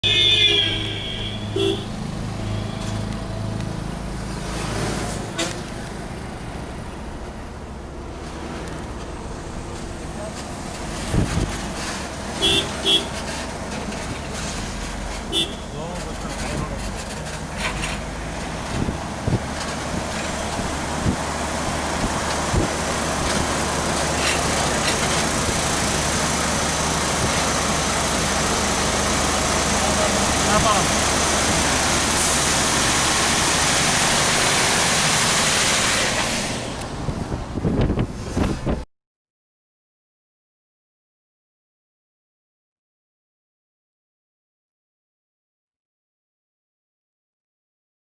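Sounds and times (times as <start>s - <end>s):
vehicle horn: 0.0s - 3.0s, 12.4s - 13.2s, 15.3s - 15.8s
traffic noise: 0.0s - 38.8s
truck engine running: 1.6s - 37.6s.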